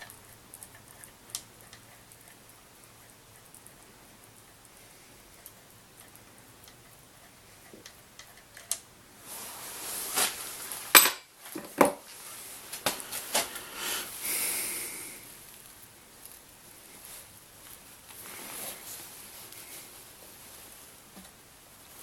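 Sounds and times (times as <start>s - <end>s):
metal tools clinking and knocking: 10.9s - 12.0s.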